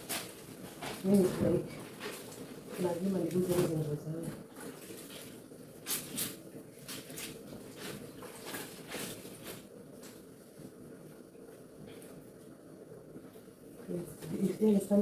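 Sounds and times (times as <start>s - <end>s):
wet clothes rubbed by hand: 0.0s - 10.6s.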